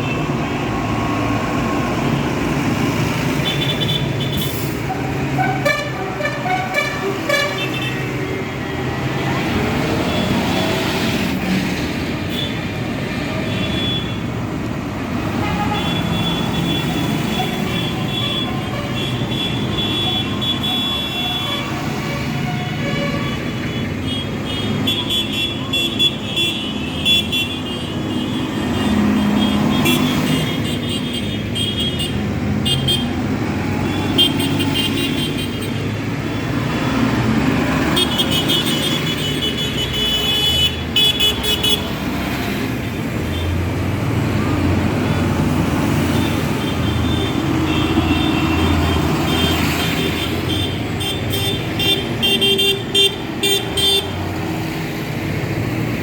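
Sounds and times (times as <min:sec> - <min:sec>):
tractor engines running: 0:00.0 - 0:56.0
horns sounding: 0:03.3 - 0:08.5.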